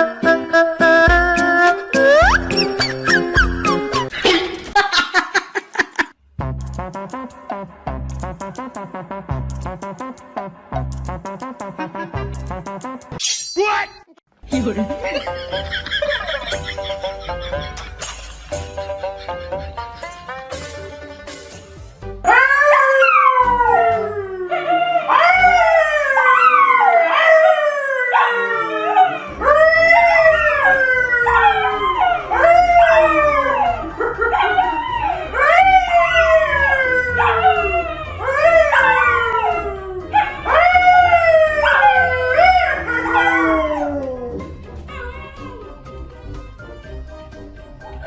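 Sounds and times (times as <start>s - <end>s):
animal howling: 22.3s - 45.9s.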